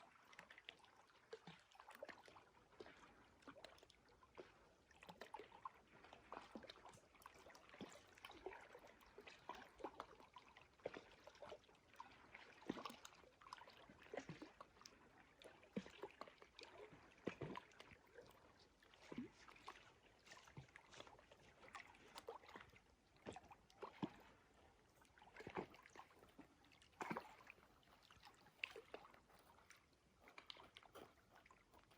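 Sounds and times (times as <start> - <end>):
faint trickling water: 0.0 - 31.9.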